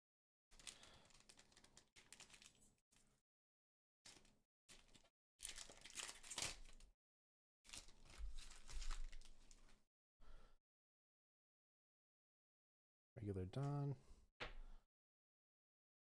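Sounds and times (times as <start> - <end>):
foil wrapper crinkling and tearing: 0.5 - 2.8, 4.1 - 6.9, 7.7 - 9.8.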